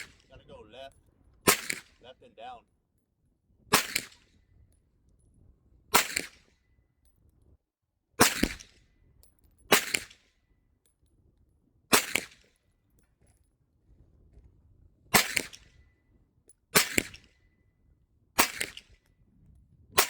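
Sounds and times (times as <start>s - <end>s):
gunshots with echo: 1.5s - 2.5s.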